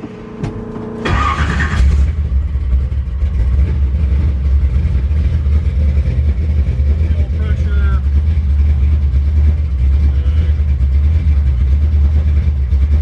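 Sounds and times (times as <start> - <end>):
starter motor whirring: 0.0 - 2.4
engine running rumble: 0.0 - 13.0.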